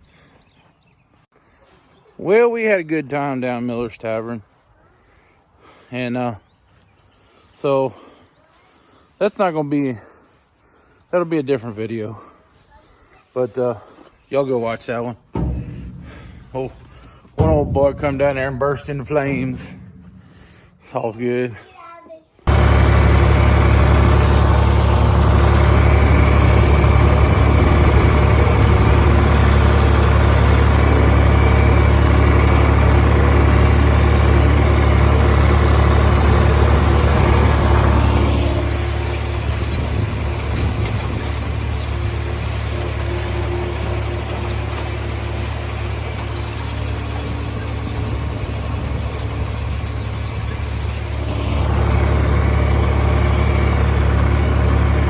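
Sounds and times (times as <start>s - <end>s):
tractor engine running: 14.8s - 21.5s, 22.5s - 55.0s.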